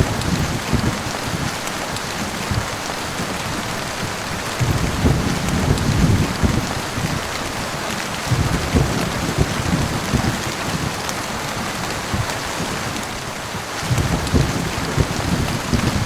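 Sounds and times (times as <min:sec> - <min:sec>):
low rolling thunder: 0:00.0 - 0:01.6, 0:04.6 - 0:13.2, 0:13.8 - 0:16.0
heavy rain: 0:00.0 - 0:16.0.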